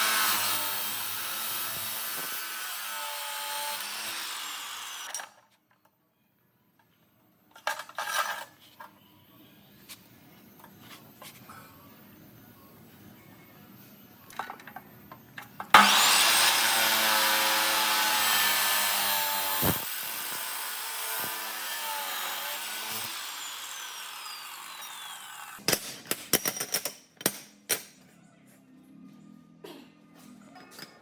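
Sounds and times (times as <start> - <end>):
electric power tool whining: 0.0 - 5.2, 15.8 - 25.6.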